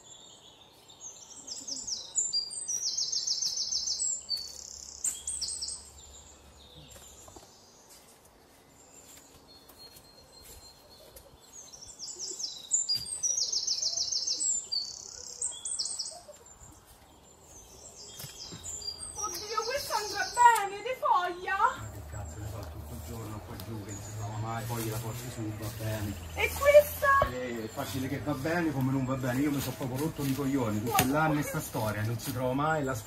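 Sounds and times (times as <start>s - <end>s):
songbird trilling: 0.0s - 7.4s, 9.6s - 22.9s
quiet woodland background: 0.0s - 33.0s.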